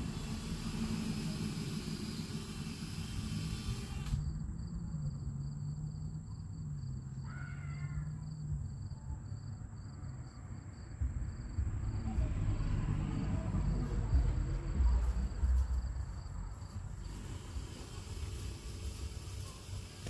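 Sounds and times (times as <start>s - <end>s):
steady low hum: 0.0s - 7.3s, 8.0s - 20.0s
loud low rumble: 4.1s - 7.1s, 8.3s - 17.0s.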